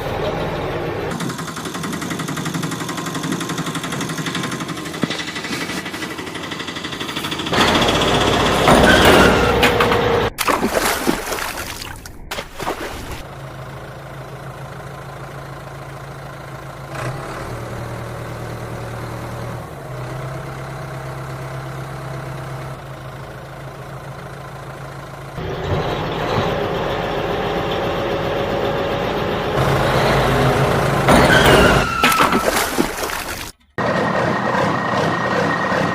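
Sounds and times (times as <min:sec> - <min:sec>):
vehicle engine idling: 0:00.0 - 0:08.7, 0:13.2 - 0:31.5.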